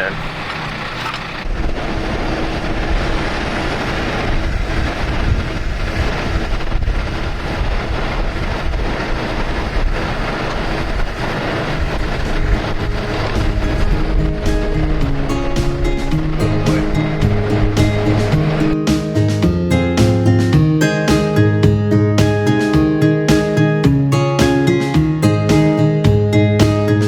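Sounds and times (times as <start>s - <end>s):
heavy vehicle engine rumbling: 0.0s - 18.8s
music: 12.3s - 27.0s.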